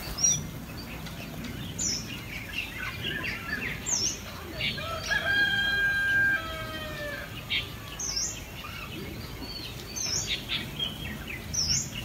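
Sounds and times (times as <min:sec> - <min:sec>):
birds chirping: 0:00.0 - 0:12.0
rooster crowing: 0:04.8 - 0:07.4.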